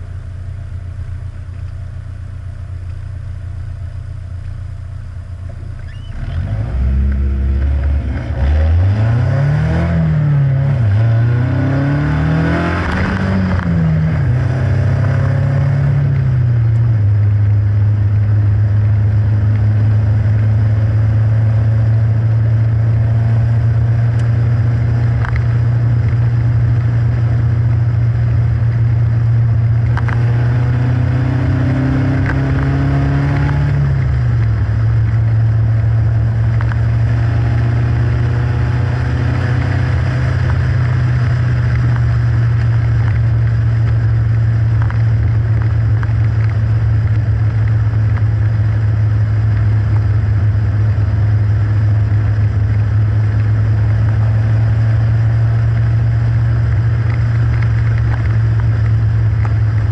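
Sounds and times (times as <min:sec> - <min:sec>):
car engine driving: 0:00.0 - 0:59.9
wind and road noise: 0:00.0 - 0:59.9.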